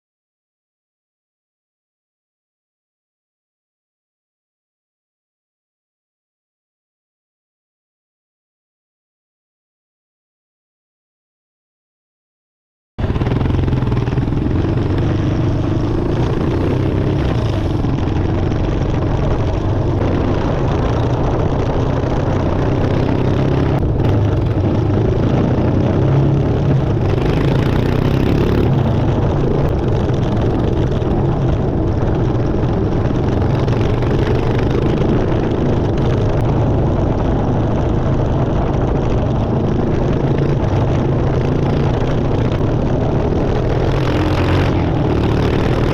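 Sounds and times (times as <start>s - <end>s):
motorcycle engine running: 13.0s - 45.9s.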